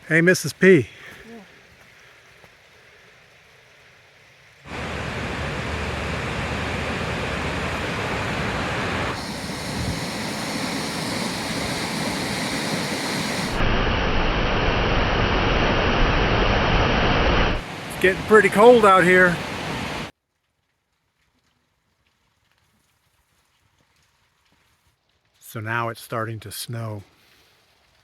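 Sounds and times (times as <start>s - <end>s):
waterfall rushing: 4.7s - 13.7s, 14.4s - 20.1s.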